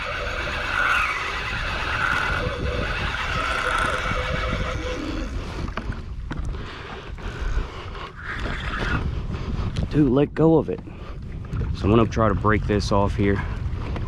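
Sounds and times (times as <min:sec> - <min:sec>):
fishing reel drag squealing: 0:00.0 - 0:05.4
water noise: 0:00.0 - 0:14.0
wind: 0:00.0 - 0:14.0.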